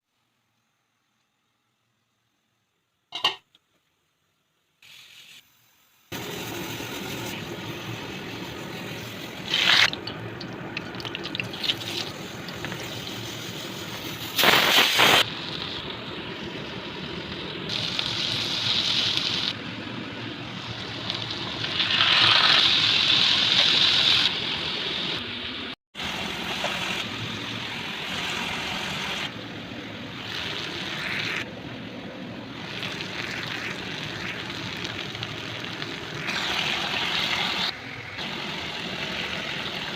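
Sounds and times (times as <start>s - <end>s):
liquid hiss while cooking: 4.8s - 19.6s, 30.1s - 31.5s, 32.5s - 39.9s.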